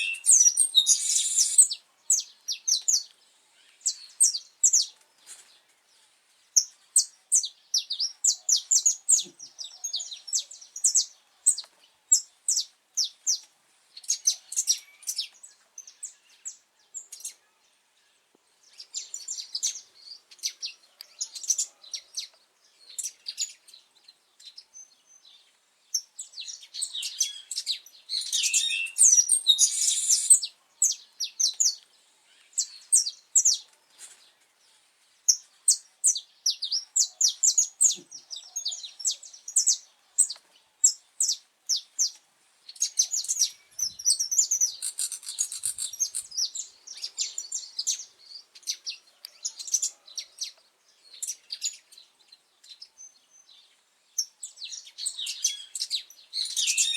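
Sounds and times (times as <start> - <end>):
finch singing high sharp chirps: 0.0 - 1.8, 27.1 - 30.5, 42.8 - 48.1, 54.9 - 56.9.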